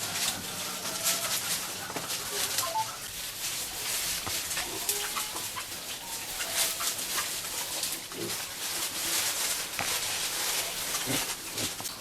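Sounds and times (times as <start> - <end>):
pigs chewing fodder: 0.0 - 12.0
pig grunts: 11.0 - 11.9.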